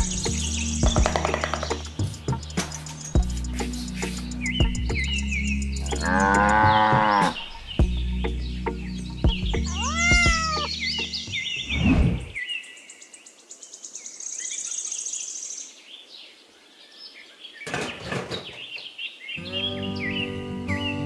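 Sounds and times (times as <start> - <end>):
birds chirping: 0.0 - 21.0
low steady animal sound: 5.8 - 7.6, 9.6 - 11.0
fast high bird trill: 9.4 - 11.6
rising and falling call: 9.6 - 12.4.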